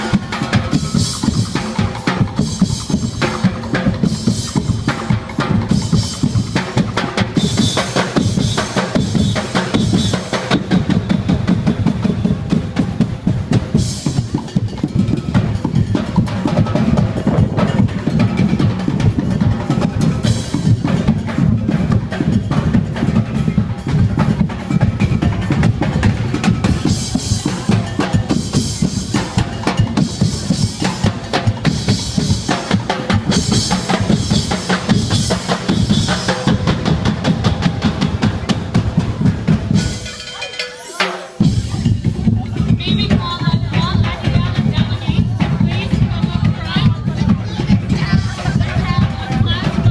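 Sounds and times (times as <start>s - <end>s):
cymbals clashing: 0.0s - 44.2s
drum band playing fast beat: 0.0s - 49.9s.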